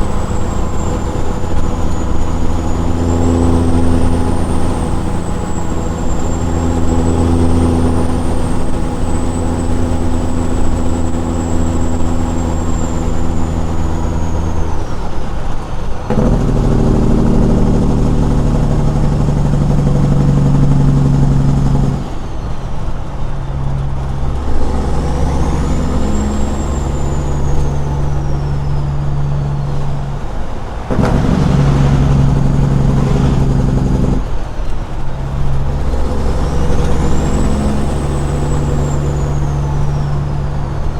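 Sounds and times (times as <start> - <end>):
faint high whistle: 0.0 - 15.1, 22.1 - 30.4, 36.2 - 40.9
diesel truck exhaust: 0.0 - 40.9.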